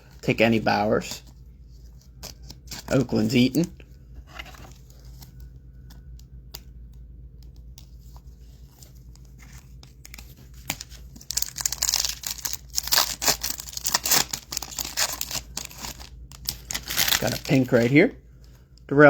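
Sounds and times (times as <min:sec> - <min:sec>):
foil wrapper tearing and crinkling: 0:10.0 - 0:18.0.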